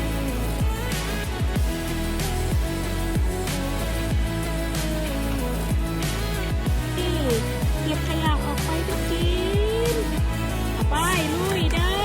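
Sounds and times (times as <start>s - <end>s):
deep kick drum hits: 0.6s - 0.8s, 1.4s - 1.8s, 2.5s - 3.4s, 6.5s - 7.0s, 7.6s - 8.5s, 11.6s - 12.0s.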